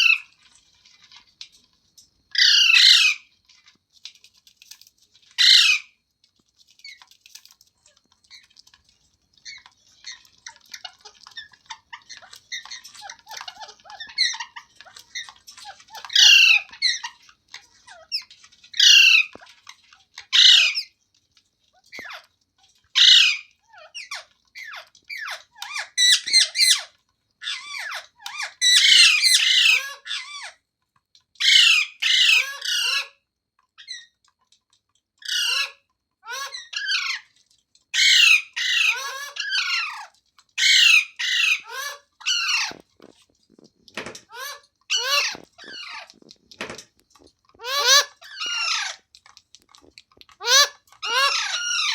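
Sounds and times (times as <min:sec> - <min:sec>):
parakeet chattering chirps: 0:02.4 - 0:03.2, 0:05.4 - 0:05.9, 0:09.4 - 0:17.2, 0:17.8 - 0:19.3, 0:20.3 - 0:20.9, 0:23.0 - 0:30.5, 0:31.4 - 0:33.1, 0:38.0 - 0:49.1, 0:49.7 - 0:51.9
parakeet harsh squawks: 0:02.4 - 0:03.3, 0:05.4 - 0:06.0, 0:09.5 - 0:17.2, 0:17.8 - 0:19.4, 0:20.2 - 0:20.9, 0:22.9 - 0:30.6, 0:31.4 - 0:33.2, 0:35.2 - 0:37.3, 0:38.0 - 0:42.9, 0:44.1 - 0:46.8, 0:47.5 - 0:49.1, 0:50.2 - 0:51.9.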